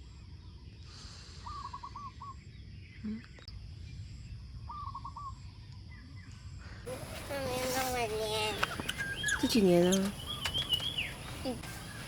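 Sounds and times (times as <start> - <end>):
outdoor background noise: 0.0 - 12.0
bird calling: 6.9 - 12.0.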